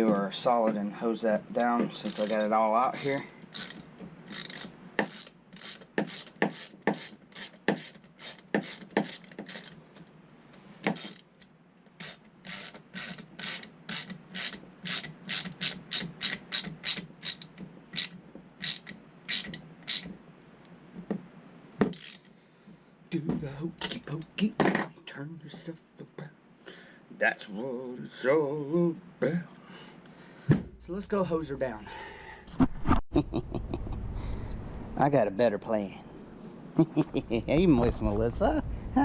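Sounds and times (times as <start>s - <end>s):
hand ratchet clicking: 2.0s - 9.8s, 10.9s - 11.3s, 12.0s - 20.1s, 21.9s - 22.3s.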